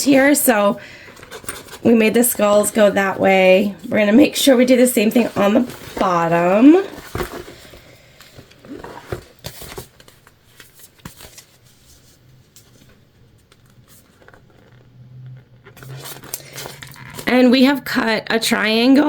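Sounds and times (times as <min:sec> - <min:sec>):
vinyl pieces crinkling: 0:05.2 - 0:17.4.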